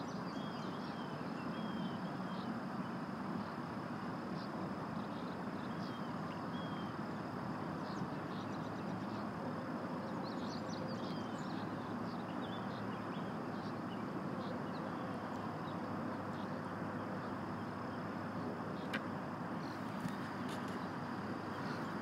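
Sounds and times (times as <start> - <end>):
outdoor background noise: 0.0 - 22.0
birds chirping: 10.1 - 22.0.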